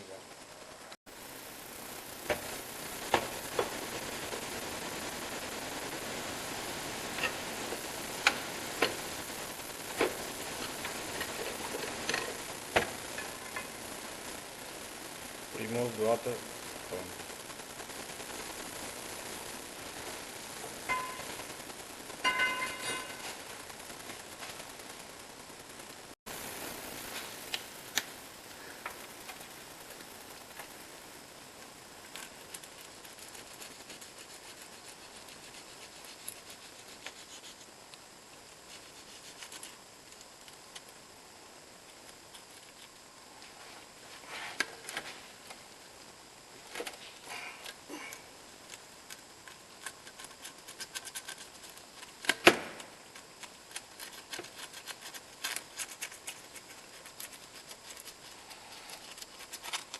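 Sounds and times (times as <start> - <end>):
steady hiss: 0.0 - 59.9
hand tools clicking and scraping: 6.9 - 13.7, 22.2 - 23.5, 48.7 - 59.9.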